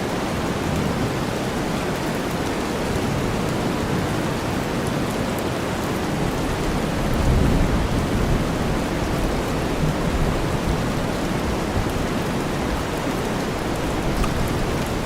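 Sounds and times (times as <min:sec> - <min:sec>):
rain falling: 0:00.0 - 0:15.0
low thunder rumble: 0:06.7 - 0:12.0.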